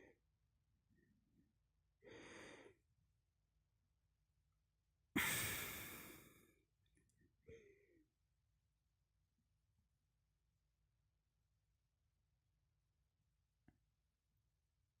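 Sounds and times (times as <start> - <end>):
person yawning and sighing: 5.2 - 6.4
short breath: 5.2 - 6.6.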